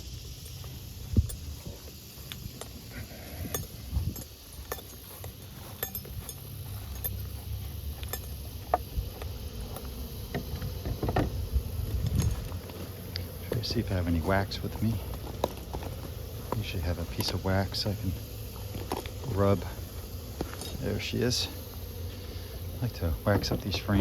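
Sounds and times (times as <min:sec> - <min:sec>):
plastic beehive frames clicking: 0:07.9 - 0:24.0.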